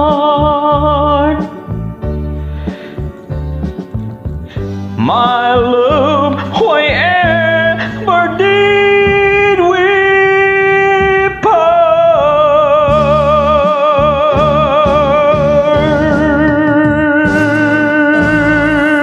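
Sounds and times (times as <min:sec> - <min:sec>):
sustained backing track: 0:00.0 - 0:19.0
person singing long notes: 0:05.0 - 0:19.0.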